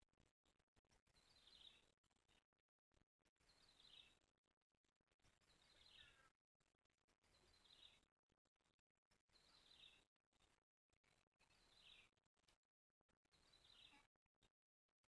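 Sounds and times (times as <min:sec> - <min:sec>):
faint outdoor background: 0:00.0 - 0:15.0.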